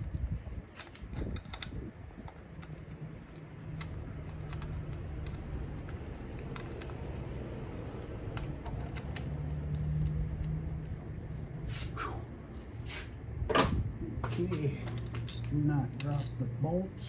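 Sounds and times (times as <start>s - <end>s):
engine parts being handled: 0.6s - 11.9s, 13.5s - 16.7s
hand tool clicks and taps: 2.6s - 7.2s.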